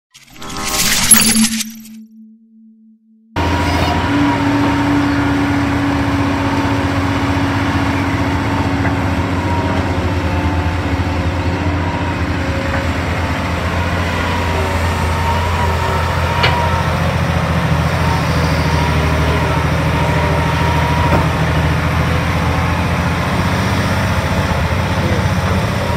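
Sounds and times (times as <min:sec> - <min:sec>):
excavator diesel engine running: 0:03.4 - 0:25.9.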